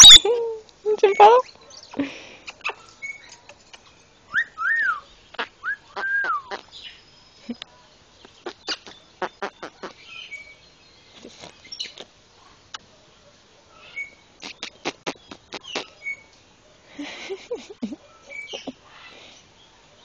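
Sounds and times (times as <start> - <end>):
kissing smacks and clicks: 14.4 - 15.9.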